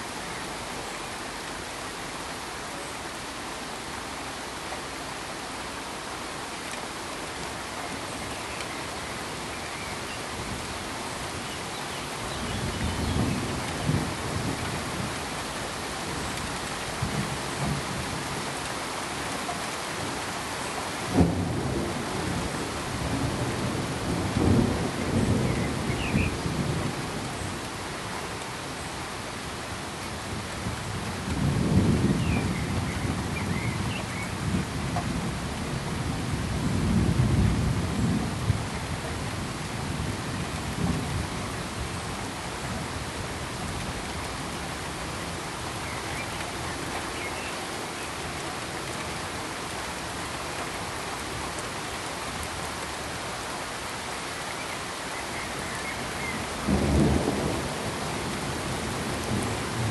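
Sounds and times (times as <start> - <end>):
steady hiss of rain: 0.0 - 59.9
distant thunder rumbling: 56.0 - 59.9.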